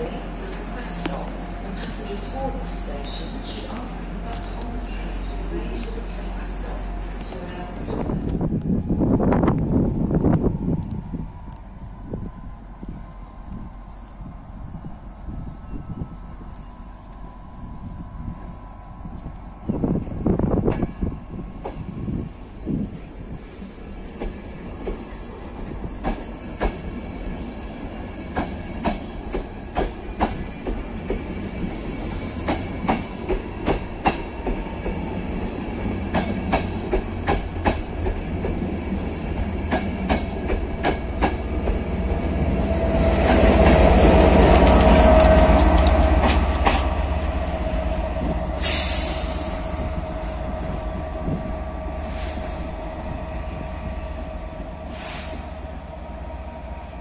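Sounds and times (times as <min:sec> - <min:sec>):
diesel locomotive engine drone: 0:00.0 - 0:57.0
short high hisses: 0:48.6 - 0:49.6, 0:54.9 - 0:55.5.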